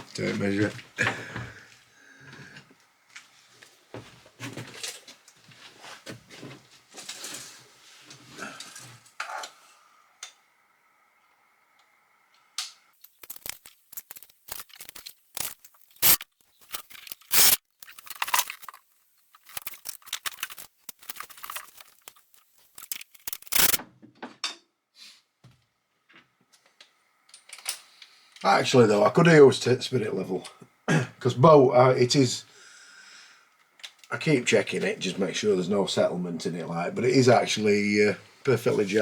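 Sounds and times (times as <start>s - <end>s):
sharp rasping and clicking: 13.0s - 18.8s, 19.4s - 23.8s.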